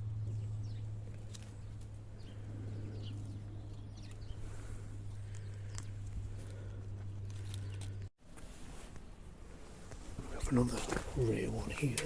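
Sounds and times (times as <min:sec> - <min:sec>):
steady low hum: 0:00.0 - 0:08.1.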